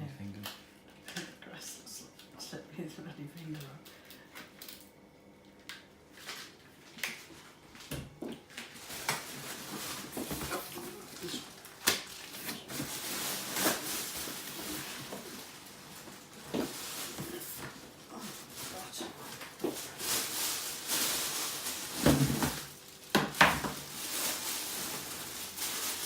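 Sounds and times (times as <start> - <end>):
packaging rustling: 6.1 - 26.0.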